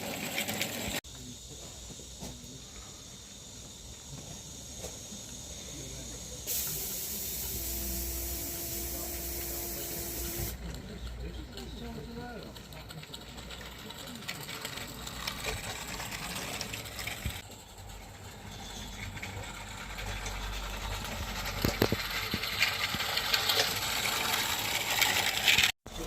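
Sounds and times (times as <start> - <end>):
steam locomotive hissing: 0.9 - 10.6
mechanical rattle and clicks: 8.3 - 25.7.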